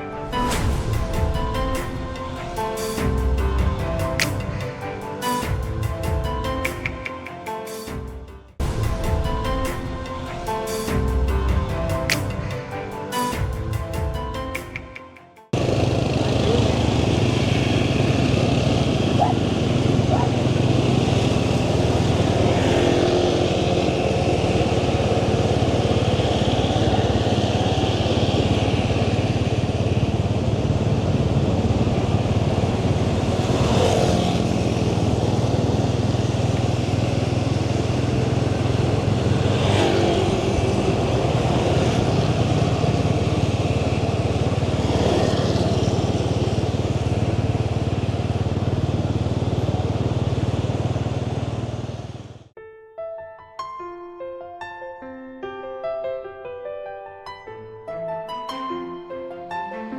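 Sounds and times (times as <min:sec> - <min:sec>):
motorbike engine running: 0:15.6 - 0:52.5
road and wind noise: 0:15.6 - 0:52.5.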